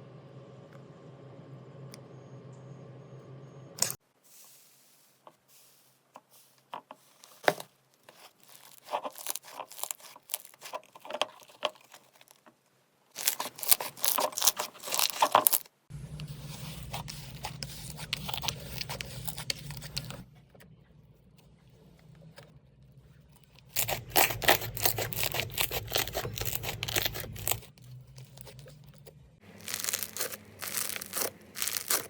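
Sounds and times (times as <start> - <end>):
slime crackling and popping: 8.1 - 12.4, 13.2 - 15.7, 23.7 - 28.6, 29.5 - 32.0
steady low hum: 15.9 - 32.0.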